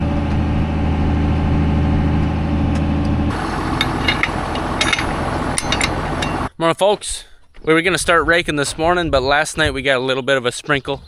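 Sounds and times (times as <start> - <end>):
engine idling: 3.3 - 6.5.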